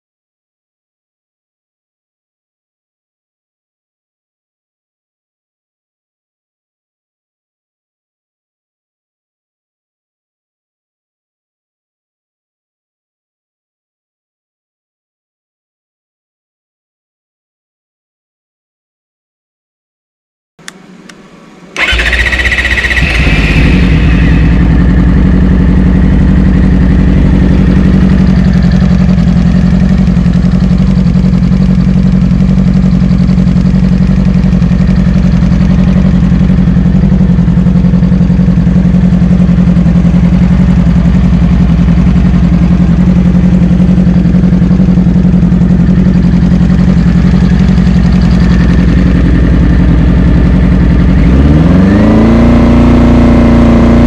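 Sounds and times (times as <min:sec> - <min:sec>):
motorcycle engine starting and idling: 0:20.6 - 0:54.0.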